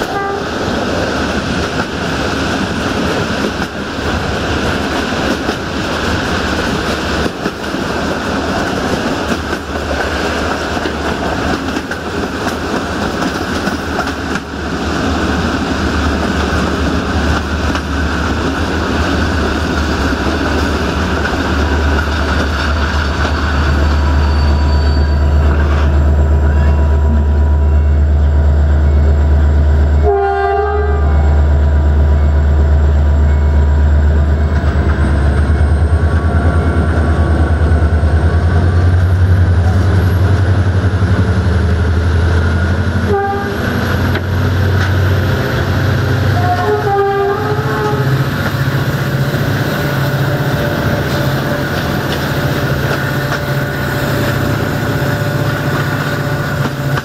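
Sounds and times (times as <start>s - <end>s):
train horn: 0.0s - 0.6s, 29.9s - 31.4s, 42.9s - 43.9s, 46.1s - 48.3s
train wheels rumbling and clicking: 0.0s - 57.0s.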